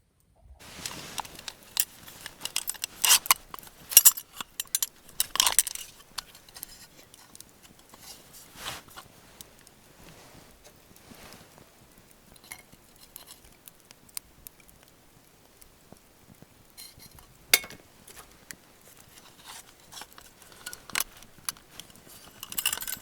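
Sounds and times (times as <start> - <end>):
small metal objects clinking: 0.6 - 9.0, 18.9 - 23.0.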